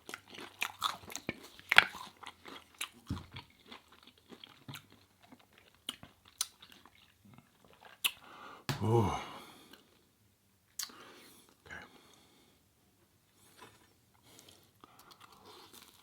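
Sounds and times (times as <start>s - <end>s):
chewing with crunches: 0.0s - 8.3s, 13.4s - 16.0s.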